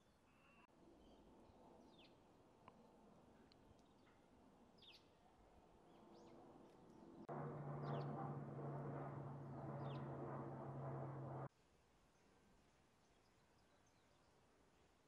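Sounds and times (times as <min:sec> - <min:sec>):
small birds chirping: 0:05.9 - 0:08.4
low droning hum: 0:07.2 - 0:11.5.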